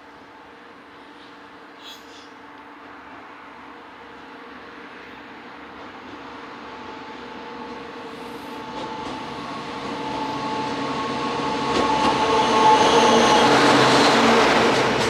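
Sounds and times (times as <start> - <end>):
train wheels clicking on rail joints: 7.2 - 15.0
locomotive engine drone: 8.1 - 15.0.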